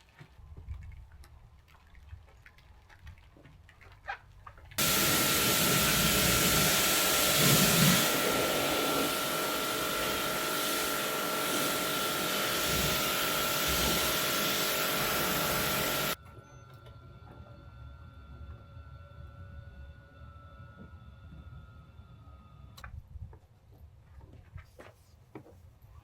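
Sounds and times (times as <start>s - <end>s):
electric machine hissing and whining: 4.8s - 16.2s.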